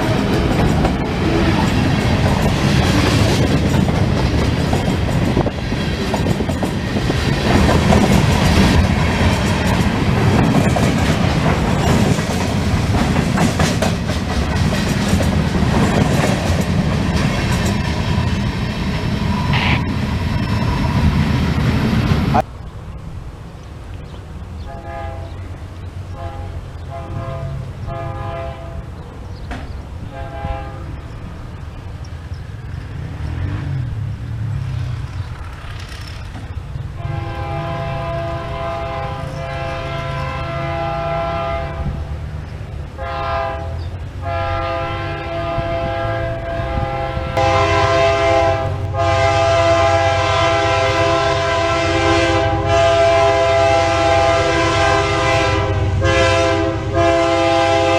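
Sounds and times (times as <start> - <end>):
locomotive engine rumble: 0.0 - 57.9
locomotive air horn blasts: 24.7 - 25.4, 26.1 - 28.9, 30.1 - 31.0, 37.0 - 42.0, 43.0 - 57.9.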